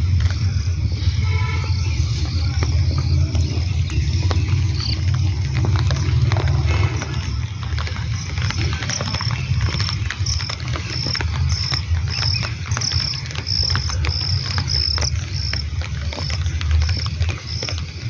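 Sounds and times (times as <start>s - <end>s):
constant low rumble: 0.0s - 18.0s
insect chirping: 0.0s - 18.0s
raindrops ticking: 0.0s - 18.0s.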